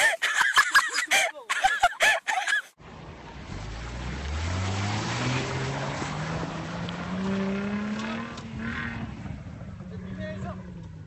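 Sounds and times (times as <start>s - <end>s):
suv engine revving under load: 3.4s - 9.8s.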